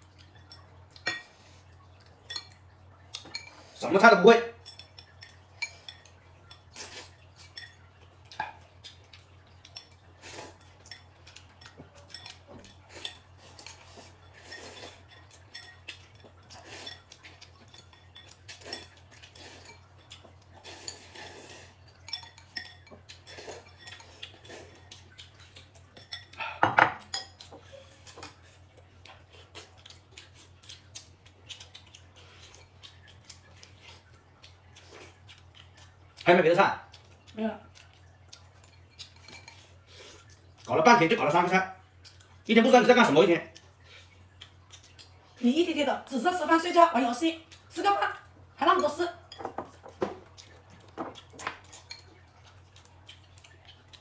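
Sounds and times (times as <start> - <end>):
utensils clinking on plates: 0.2 - 1.4, 3.2 - 3.8, 4.5 - 28.5, 37.9 - 40.7, 48.6 - 52.6.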